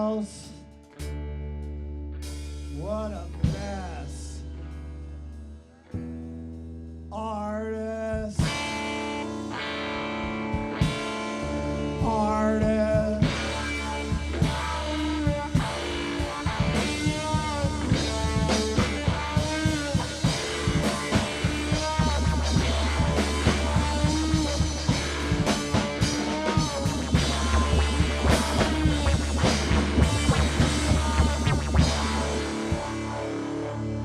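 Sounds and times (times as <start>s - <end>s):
bass: 0.0s - 34.0s
guitar: 0.0s - 34.0s
drum kit beat: 8.4s - 9.3s, 10.4s - 34.0s.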